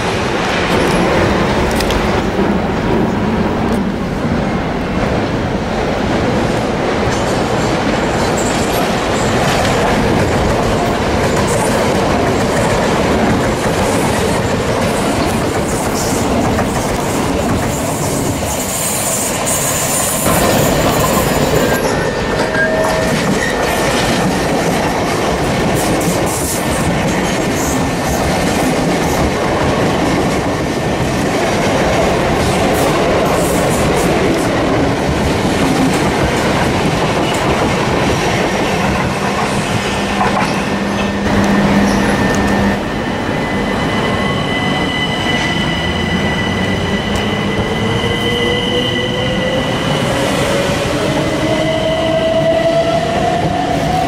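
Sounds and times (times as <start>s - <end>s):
trains passing at speed: 0.0s - 54.0s
high-pitched wheel squeal: 40.9s - 50.2s.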